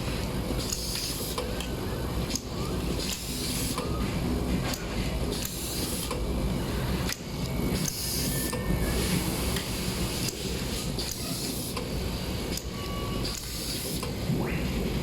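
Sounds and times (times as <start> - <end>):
sharp machine clicks: 12.5 - 14.2.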